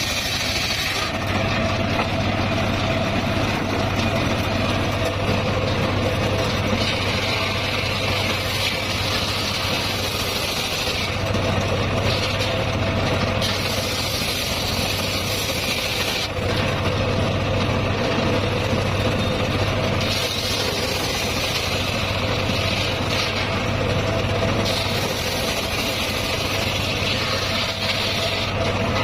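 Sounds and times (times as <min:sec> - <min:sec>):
saw hissing: 0:00.0 - 0:01.1, 0:06.8 - 0:11.2, 0:13.4 - 0:16.3, 0:20.0 - 0:23.5, 0:24.6 - 0:28.6
sawmill mechanical hum: 0:00.0 - 0:29.0.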